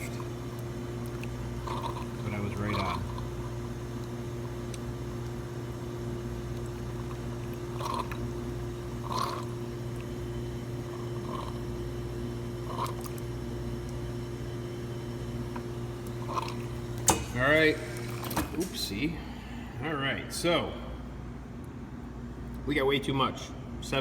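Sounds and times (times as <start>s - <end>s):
water trickling into cup: 0.0s - 5.5s, 6.4s - 10.2s
espresso machine pump hum: 0.0s - 19.9s.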